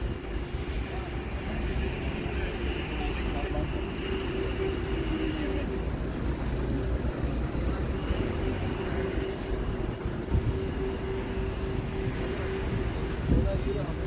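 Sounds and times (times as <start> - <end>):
train running rumble: 5.7 - 14.0.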